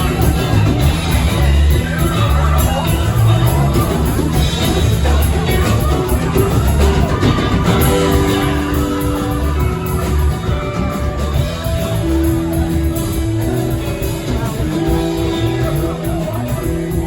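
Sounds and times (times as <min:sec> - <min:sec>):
rock band playing: 0:00.0 - 0:17.0
guitar sustained notes: 0:05.5 - 0:16.7.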